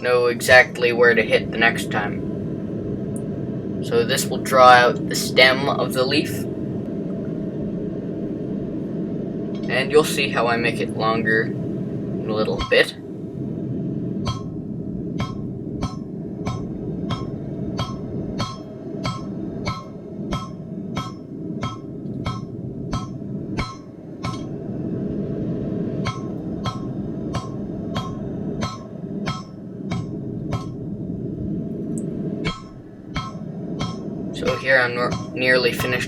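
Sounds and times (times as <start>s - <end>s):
low rushing noise: 0.0s - 36.0s.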